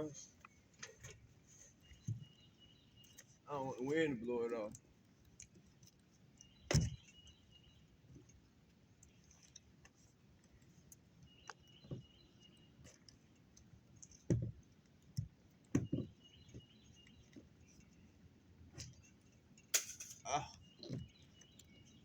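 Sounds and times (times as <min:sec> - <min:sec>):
knocks and taps handling roofing: 0:14.0 - 0:17.6.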